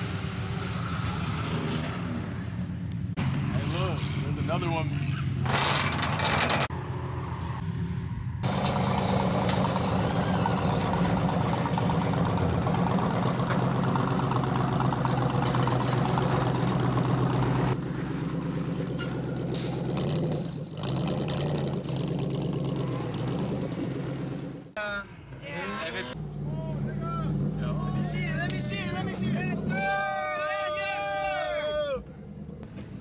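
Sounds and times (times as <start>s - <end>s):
car engine running at low revs: 0.0s - 24.8s.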